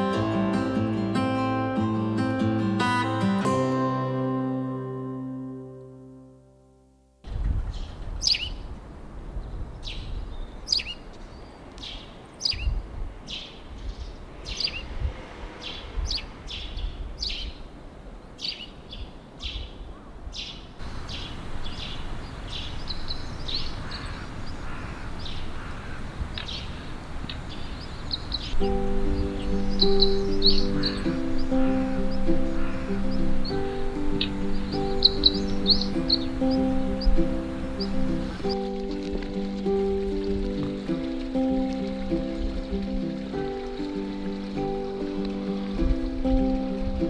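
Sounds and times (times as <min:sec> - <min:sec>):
small birds chirping: 0:07.5 - 0:38.6.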